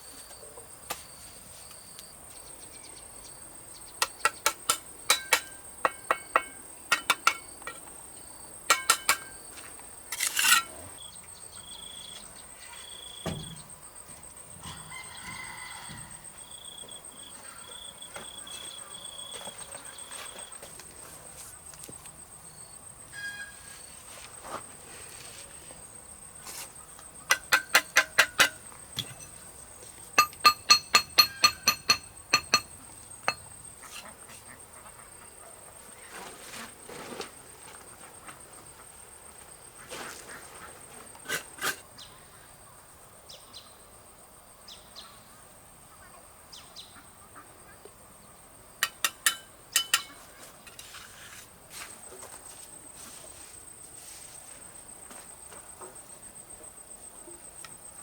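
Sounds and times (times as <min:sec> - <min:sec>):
crickets trilling: 0:00.0 - 0:47.0, 0:47.6 - 0:58.0
ringing tool strikes: 0:30.2 - 0:32.7.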